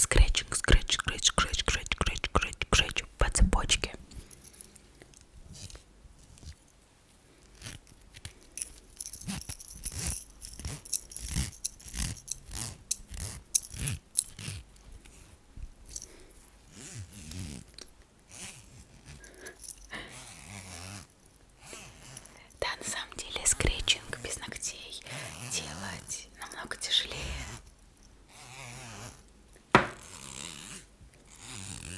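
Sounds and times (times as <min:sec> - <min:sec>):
fingertips scratching metal chain: 0:08.5 - 0:14.6, 0:18.4 - 0:22.6.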